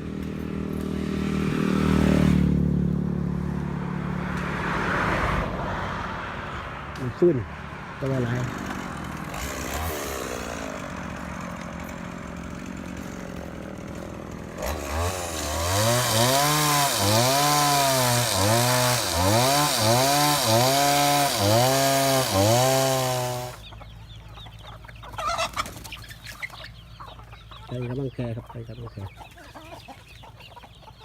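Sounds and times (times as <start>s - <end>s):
chainsaw cutting wood: 8.0s - 23.7s.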